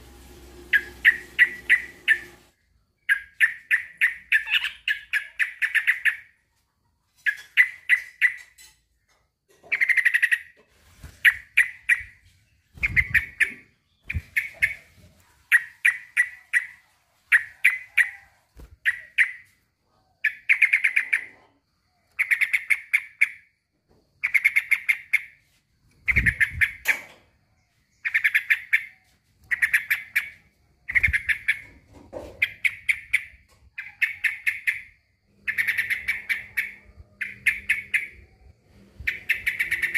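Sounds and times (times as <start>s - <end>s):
bulbul singing: 0.6s - 6.4s.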